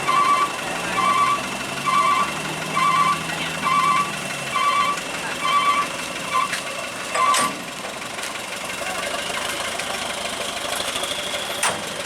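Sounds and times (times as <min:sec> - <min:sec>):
reversing alarm beeping: 0:00.0 - 0:05.9.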